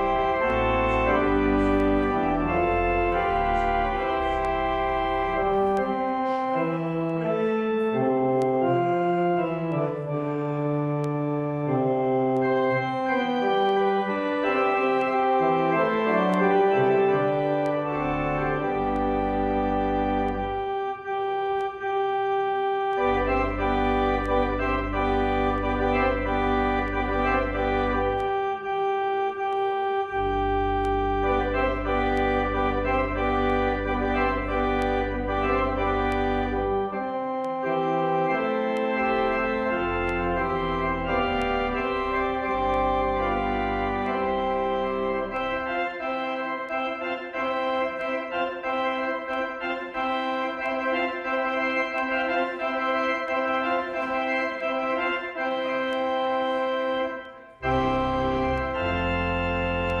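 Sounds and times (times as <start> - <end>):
deep organ pedal bass: 0.0 - 60.0
organ chords: 0.0 - 60.0.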